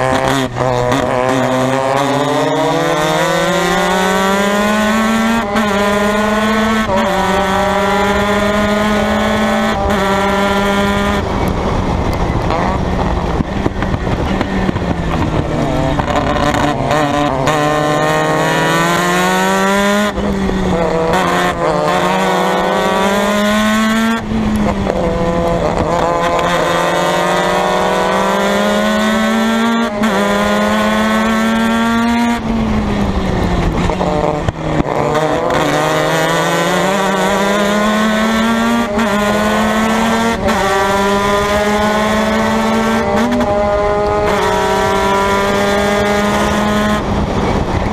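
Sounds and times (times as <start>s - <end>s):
race car engine revving: 0.0s - 47.9s.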